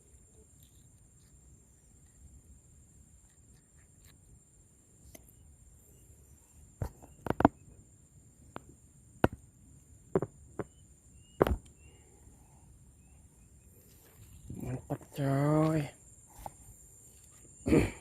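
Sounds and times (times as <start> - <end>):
sharp knocks and taps: 10.2 - 10.7.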